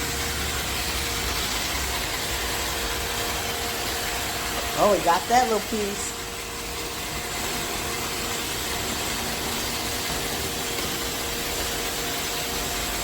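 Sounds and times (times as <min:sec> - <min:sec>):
robot vacuum whirring: 0:00.0 - 0:13.0.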